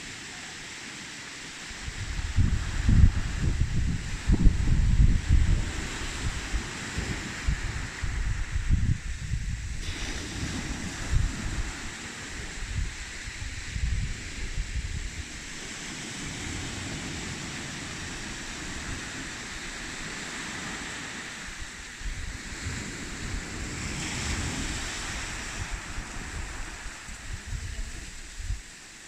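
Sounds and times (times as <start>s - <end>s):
sea surf washing on beach: 0.0s - 29.0s
wind buffeting microphone: 1.6s - 28.8s.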